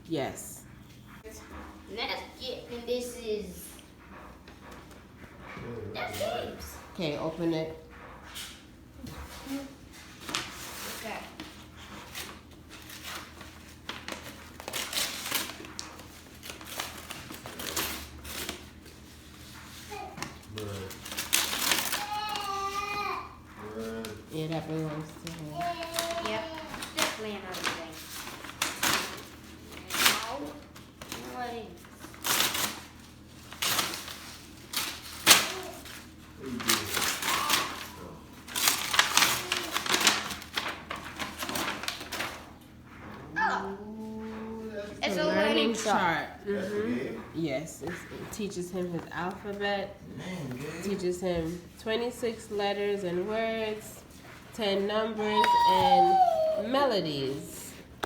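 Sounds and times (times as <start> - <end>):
wrapping paper tearing and crumpling: 10.0 - 19.1, 19.7 - 23.1, 25.0 - 42.6.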